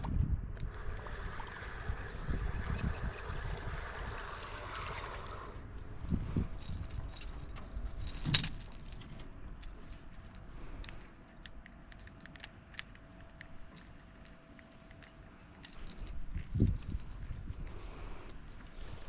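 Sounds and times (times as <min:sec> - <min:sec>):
gear clicking and rattling: 0:06.4 - 0:17.7.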